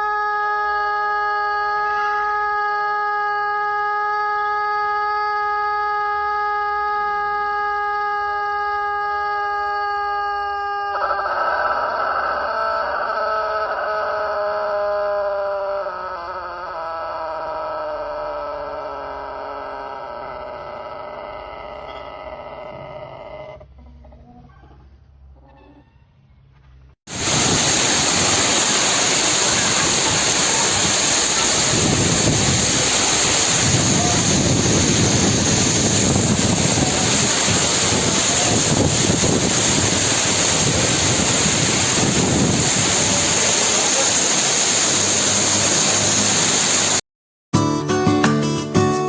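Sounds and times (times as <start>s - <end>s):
heavy rain in strong wind: 27.1s - 47.0s
acoustic guitar music: 47.6s - 49.0s.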